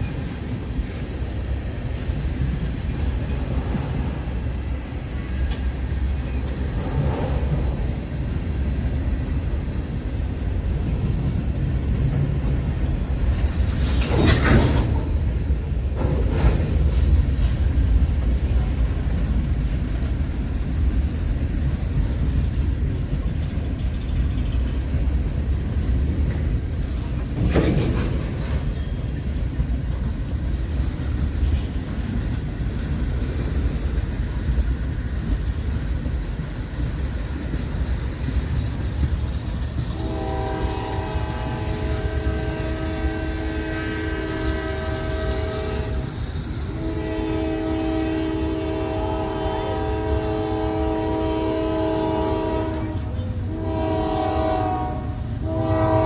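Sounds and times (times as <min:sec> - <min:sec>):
train rumbling: 0:00.0 - 0:56.0
locomotive air horn: 0:39.9 - 0:56.0.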